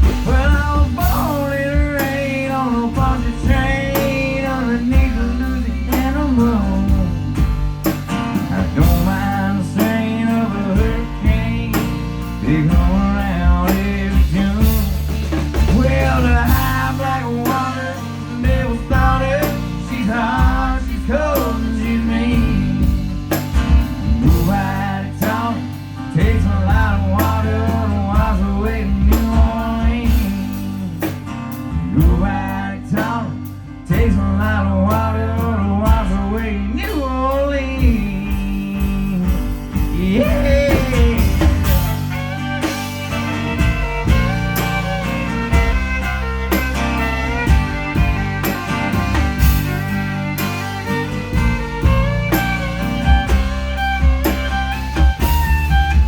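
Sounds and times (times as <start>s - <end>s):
live rock band playing: 0.0s - 56.0s
lead instrument soloing: 41.0s - 56.0s.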